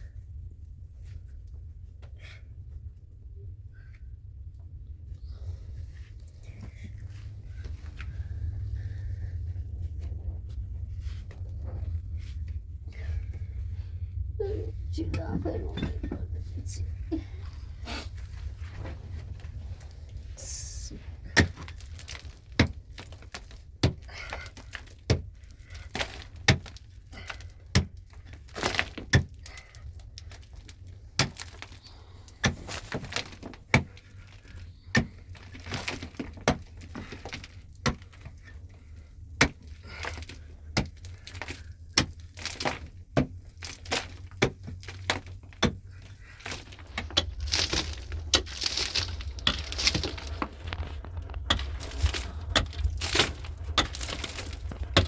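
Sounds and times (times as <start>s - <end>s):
rustling and scraping: 5.4s - 55.0s
hard material cracking: 19.3s - 55.0s.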